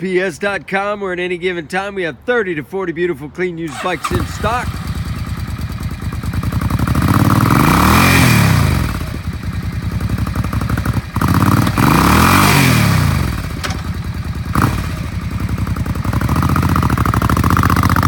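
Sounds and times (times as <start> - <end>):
motorcycle engine idling and revving: 3.7 - 18.0.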